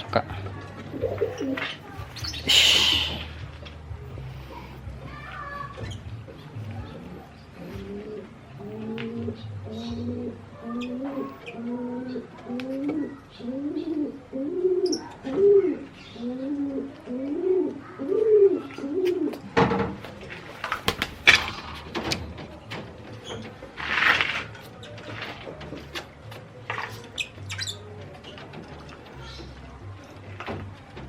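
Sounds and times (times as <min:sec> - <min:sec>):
pigeon cooing: 0:00.9 - 0:03.4, 0:06.8 - 0:19.5.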